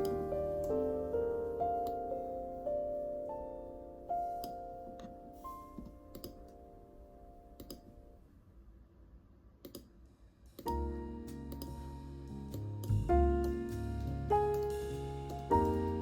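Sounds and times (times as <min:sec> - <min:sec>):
soft piano music: 0:00.0 - 0:08.2, 0:10.7 - 0:16.0
computer keyboard keystrokes: 0:06.1 - 0:06.4
music track with low bass: 0:10.7 - 0:16.0.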